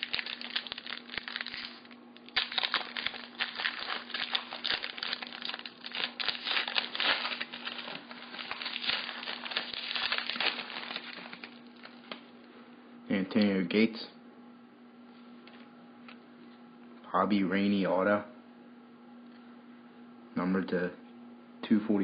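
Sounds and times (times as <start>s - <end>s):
wrapper being torn and crinkled: 0.0s - 12.2s.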